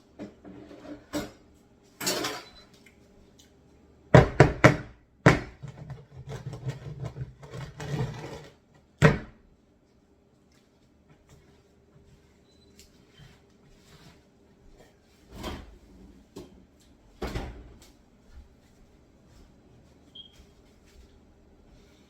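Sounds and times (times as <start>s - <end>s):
pans and utensils clattering: 0.2s - 1.4s, 2.0s - 2.6s.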